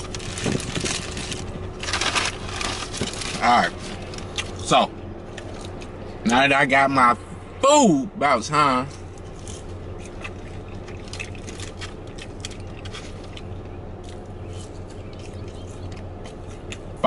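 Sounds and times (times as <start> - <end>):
paper wrapper rustling: 0.0 - 4.3
chewing fries: 0.0 - 4.7, 8.9 - 17.0
low hum: 0.0 - 17.0.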